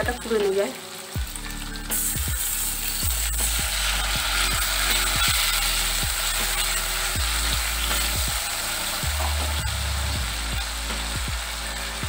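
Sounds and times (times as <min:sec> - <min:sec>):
spices sizzling in hot oil: 0:00.0 - 0:12.0
spatula scraping a pan: 0:02.9 - 0:09.6.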